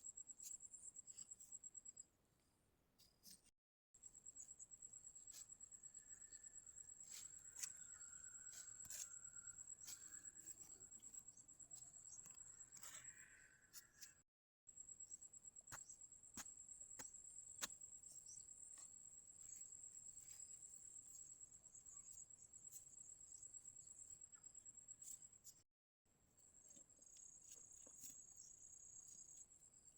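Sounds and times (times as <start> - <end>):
cricket trilling: 4.2 - 14.1.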